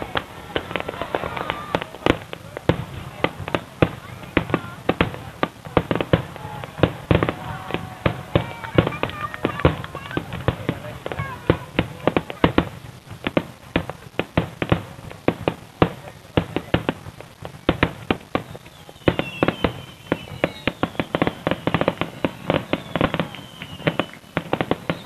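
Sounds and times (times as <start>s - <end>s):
fireworks exploding: 0.0s - 25.0s.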